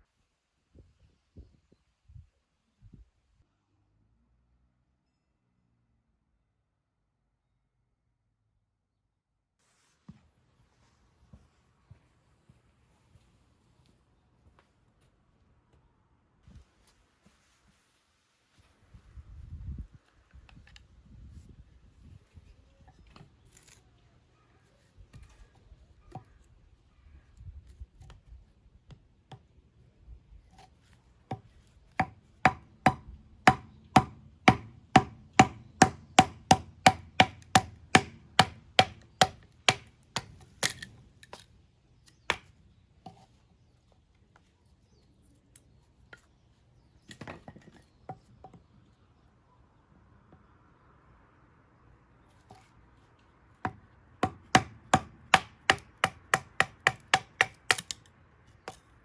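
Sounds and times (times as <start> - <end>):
knife chopping: 31.3 - 40.9, 54.2 - 58.0.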